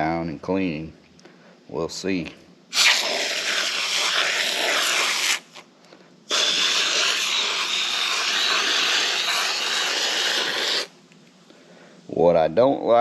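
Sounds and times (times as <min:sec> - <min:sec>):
aerosol spray hiss: 0:02.7 - 0:05.6, 0:06.3 - 0:10.9.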